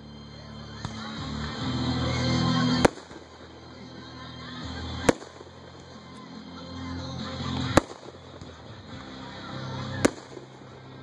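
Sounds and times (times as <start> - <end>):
firework shells bursting: 9.8 - 11.0.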